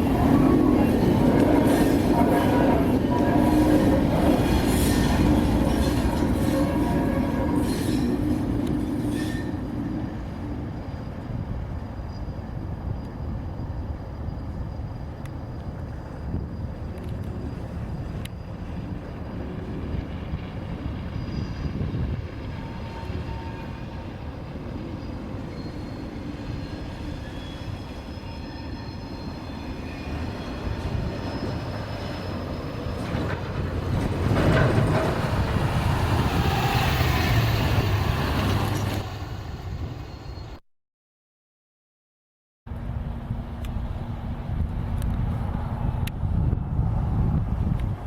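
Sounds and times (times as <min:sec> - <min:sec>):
faint wheel squeals: 0:20.8 - 0:39.2.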